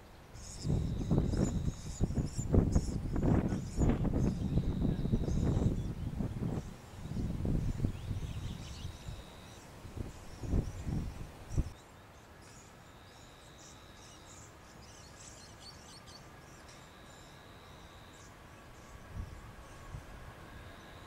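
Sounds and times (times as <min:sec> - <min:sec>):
small birds chirping: 0:00.0 - 0:20.1
high insect-like trill: 0:00.4 - 0:05.8.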